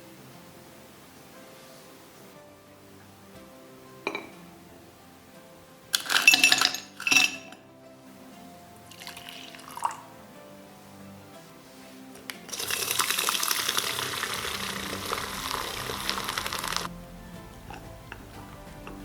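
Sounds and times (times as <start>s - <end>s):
soft background music: 0.0s - 19.0s
ice cubes clinking in a glass: 6.0s - 7.6s, 8.9s - 10.0s, 12.5s - 16.9s.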